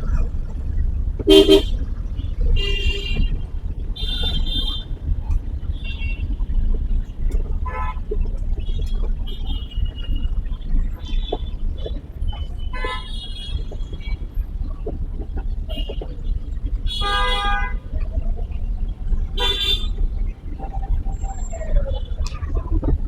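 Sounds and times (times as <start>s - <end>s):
car driving through traffic: 0.0s - 23.0s
vehicle horns honking: 1.2s - 5.0s, 7.6s - 14.1s, 15.7s - 18.0s, 19.4s - 20.0s.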